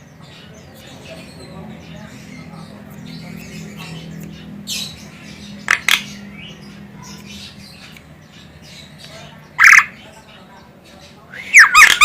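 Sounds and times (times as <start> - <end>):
bird chattering: 0.1 - 12.0
bird squawking calls: 9.5 - 10.0, 11.4 - 12.0.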